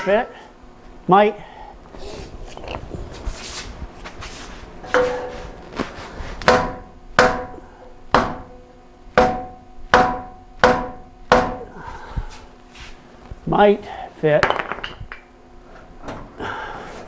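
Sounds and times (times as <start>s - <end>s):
hammer striking steel pipe: 4.9s - 5.4s, 6.5s - 11.7s.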